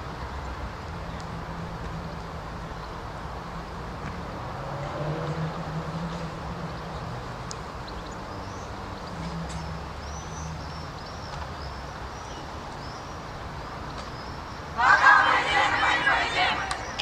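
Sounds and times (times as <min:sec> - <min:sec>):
birds chirping: 0:14.1 - 0:17.0.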